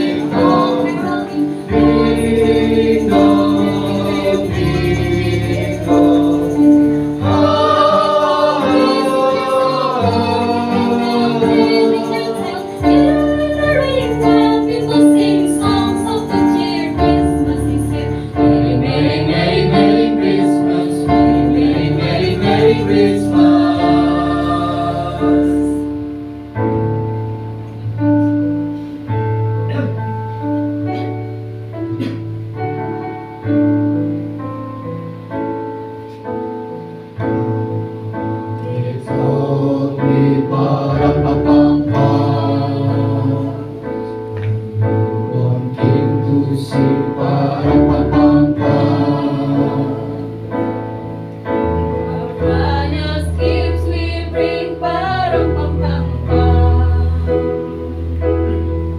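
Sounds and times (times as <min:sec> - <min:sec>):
choir singing: 0:00.0 - 0:26.2, 0:38.5 - 0:44.3, 0:45.0 - 0:58.6
keyboard playing: 0:00.0 - 0:58.9.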